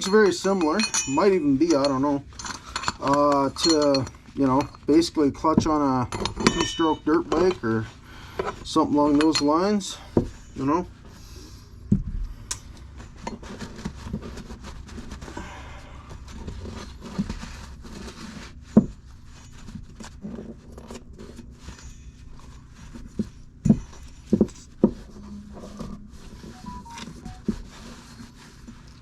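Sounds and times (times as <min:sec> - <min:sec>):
metal parts clinking and scraping: 0:00.0 - 0:07.8.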